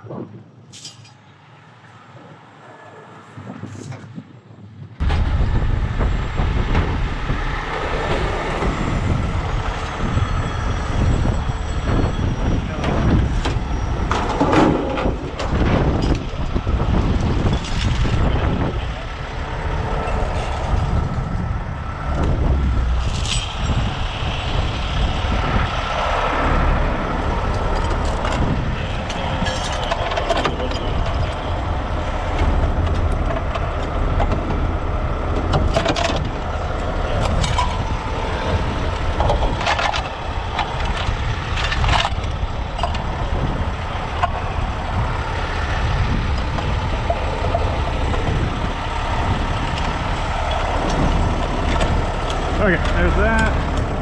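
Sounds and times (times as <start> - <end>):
diesel trucks rumbling: 0.0 - 54.0
metallic clanks and knocks: 0.7 - 1.2, 10.9 - 18.8, 27.4 - 34.6, 35.3 - 43.4.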